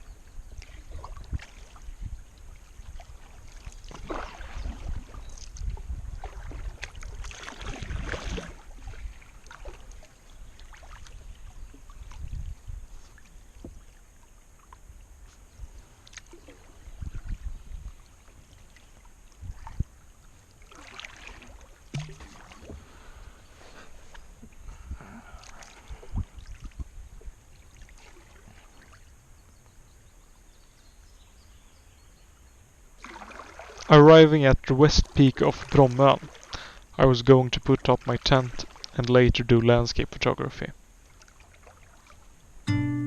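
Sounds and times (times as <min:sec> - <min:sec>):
paddle splashing water: 0:00.2 - 0:29.3, 0:33.0 - 0:34.2, 0:35.0 - 0:36.9, 0:37.7 - 0:39.1, 0:40.7 - 0:42.4.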